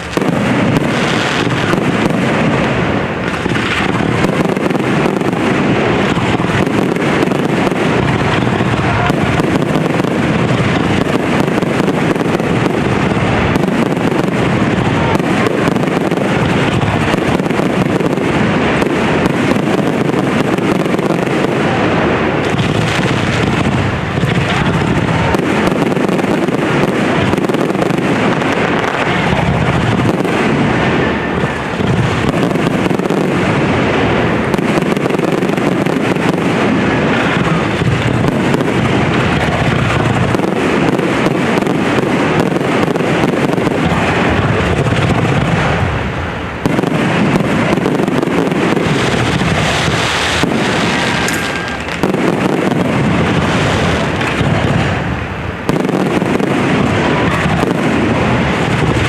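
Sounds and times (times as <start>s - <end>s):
fireworks bursting and crackling: 0.0s - 59.0s.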